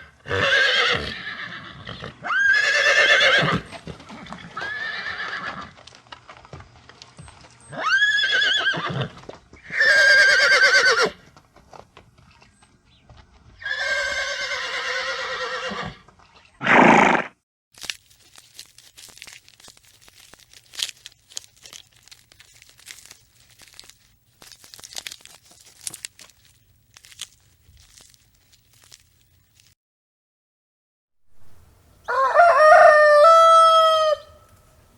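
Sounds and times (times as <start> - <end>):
horse whinnying: 0.0 - 5.8, 7.7 - 11.2, 13.6 - 16.0, 16.6 - 17.3
faint clicks and crackles: 17.8 - 29.8.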